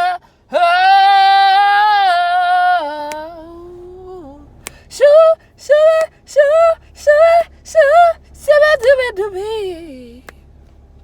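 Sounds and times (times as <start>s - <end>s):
woman singing unaccompanied: 0.0s - 10.3s.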